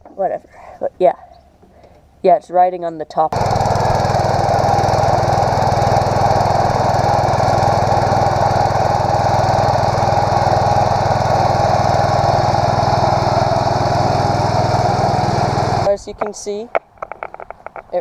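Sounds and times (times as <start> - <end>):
garden tractor engine running: 3.3 - 16.6.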